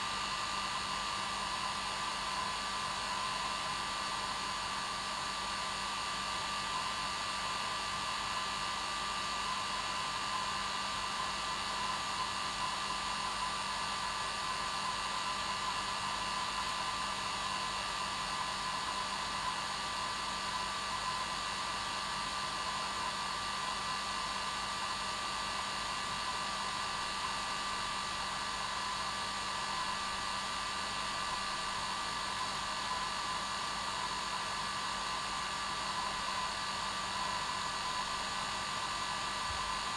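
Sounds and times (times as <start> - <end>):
hair dryer running: 26.6 - 39.9.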